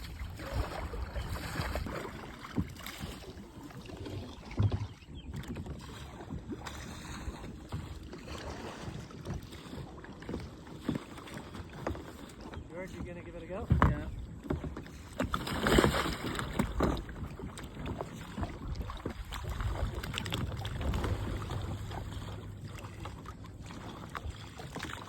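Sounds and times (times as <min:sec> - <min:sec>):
water sloshing around kayak: 0:00.0 - 0:25.0
small knocks: 0:13.0 - 0:15.3
low thump: 0:13.7 - 0:14.1
wind on microphone: 0:18.0 - 0:22.9.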